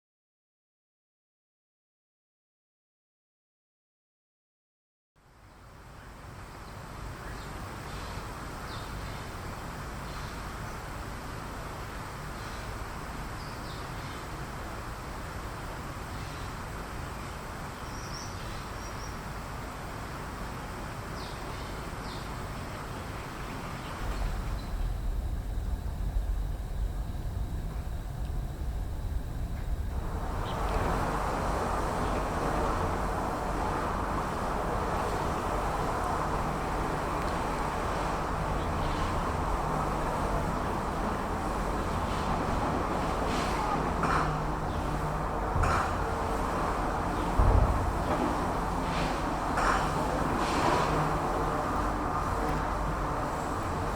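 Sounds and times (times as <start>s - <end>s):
outdoor background noise: 5.2s - 53.9s
low rumble: 24.0s - 50.3s.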